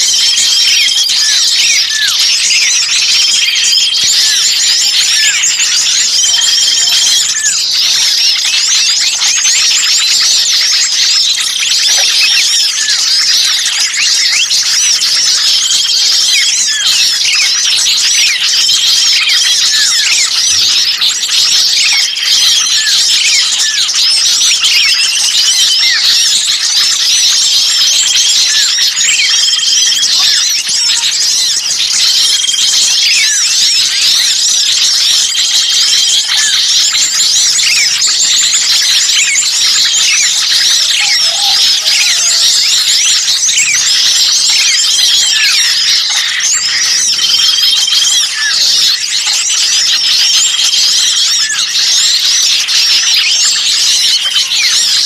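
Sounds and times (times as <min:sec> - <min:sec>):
songbirds chirping and calling: 0:00.0 - 0:55.0
short level bird trill: 0:38.8 - 0:43.8.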